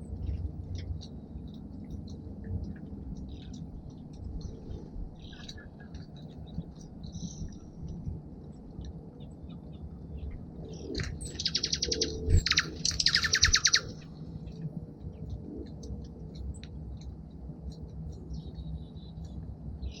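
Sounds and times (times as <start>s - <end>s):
songbirds chipping: 2.7s - 7.9s, 8.5s - 15.3s, 18.0s - 20.0s
bird trills: 11.0s - 14.1s.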